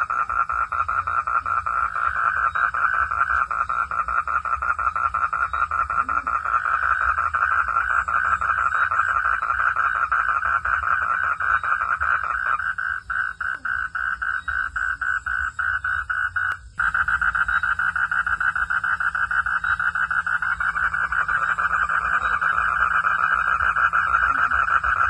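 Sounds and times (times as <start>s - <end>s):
frogs calling: 0.0s - 25.0s.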